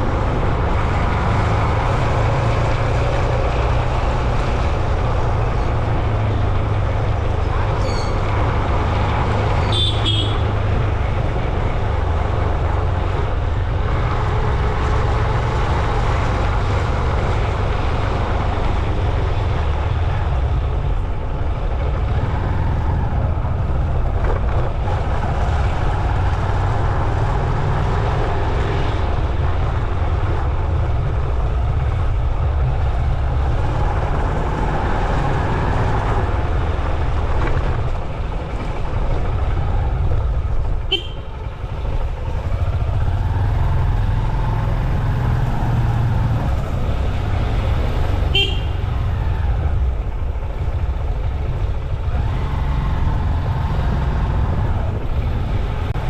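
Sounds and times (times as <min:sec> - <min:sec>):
road traffic noise: 0:00.0 - 0:56.0
short high squeak: 0:07.8 - 0:08.2.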